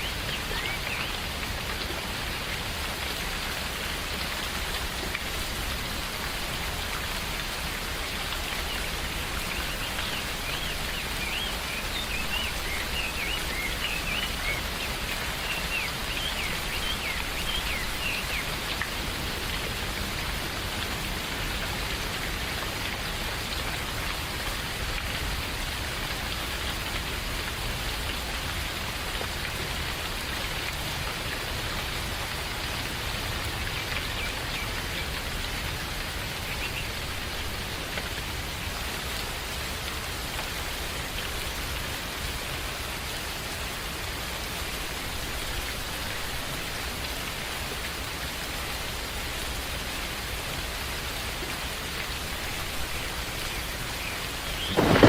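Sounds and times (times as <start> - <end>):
steady rain: 0.0 - 55.0
bird chirping: 54.4 - 55.0.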